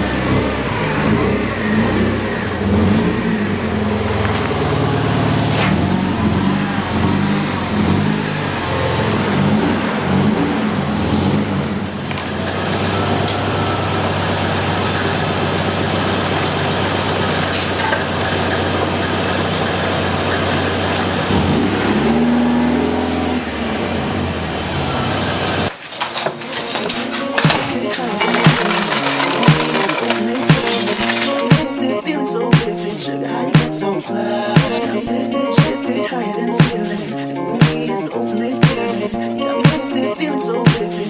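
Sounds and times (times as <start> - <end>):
car engine revving: 0.0 - 25.7, 26.7 - 32.0.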